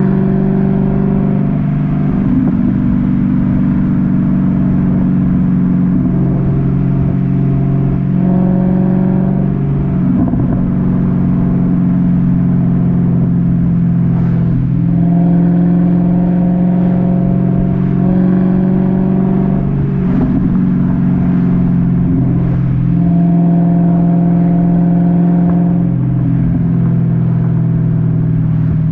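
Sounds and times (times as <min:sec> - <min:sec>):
car exhaust drone: 0:00.0 - 0:28.9.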